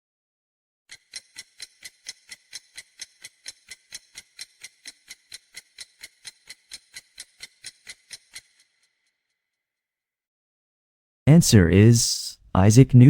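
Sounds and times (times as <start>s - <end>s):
clock-like ticking: 0.9s - 8.7s.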